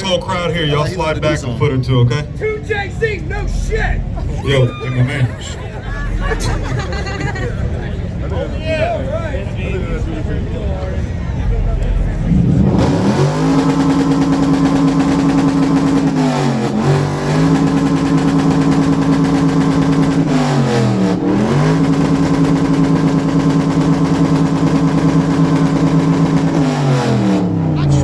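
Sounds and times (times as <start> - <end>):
car engine revving hard: 12.2 - 28.0.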